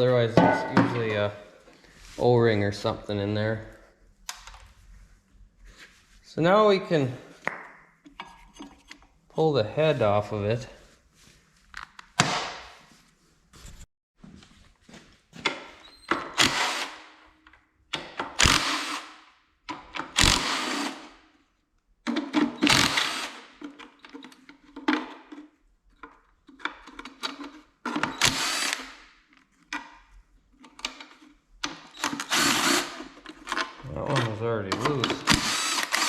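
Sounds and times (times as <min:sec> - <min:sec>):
power drill bursts: 0:16.4 - 0:17.0, 0:18.4 - 0:19.2, 0:20.2 - 0:21.1, 0:22.6 - 0:23.5, 0:28.1 - 0:29.0, 0:31.9 - 0:33.0, 0:35.2 - 0:36.0.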